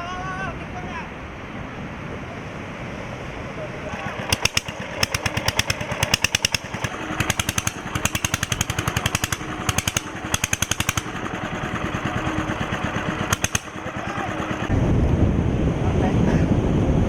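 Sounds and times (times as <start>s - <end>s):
surf: 0.0s - 17.0s
wind: 0.0s - 17.0s
small engine pulsing: 3.7s - 14.7s.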